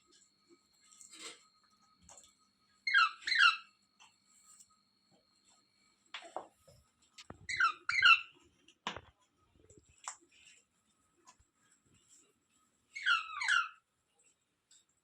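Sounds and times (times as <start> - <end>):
parakeet squawking: 2.9 - 3.7, 7.5 - 8.3, 13.0 - 13.8.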